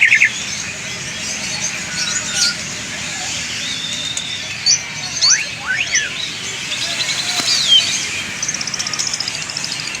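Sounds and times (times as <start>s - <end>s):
bird singing whistled notes: 0.0s - 0.6s, 3.6s - 10.0s.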